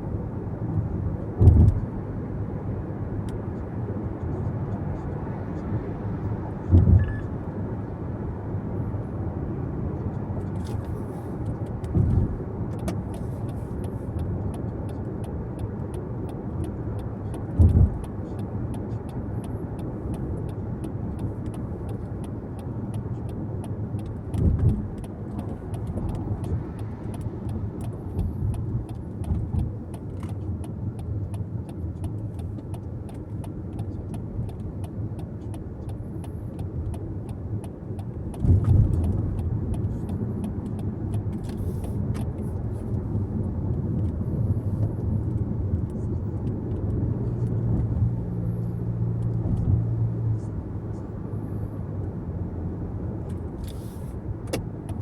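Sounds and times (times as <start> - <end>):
road and tyre noise in car: 0.0 - 55.0.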